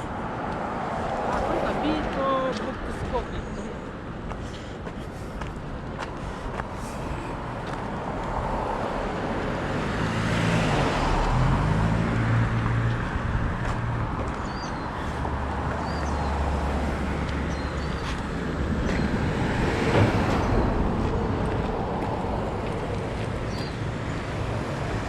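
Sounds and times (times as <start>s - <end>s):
vehicle passing by: 6.5s - 25.0s.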